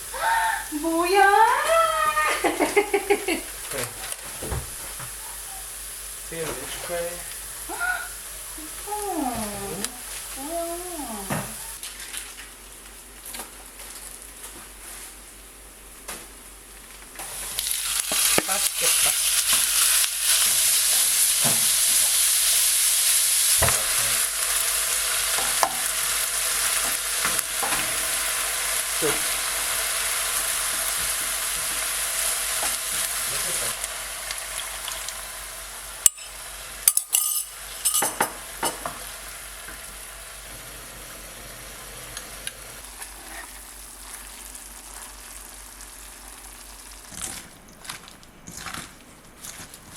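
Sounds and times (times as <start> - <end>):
food sizzling in a frying pan: 0.0 - 48.6.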